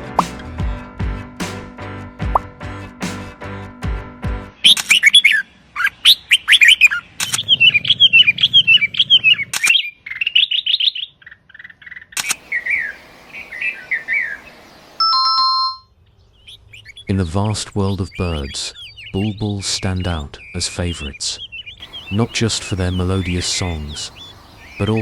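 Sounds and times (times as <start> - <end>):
music: 0.0 - 5.1
songbird chirping: 6.0 - 25.0
sharp clicks: 12.2 - 12.4.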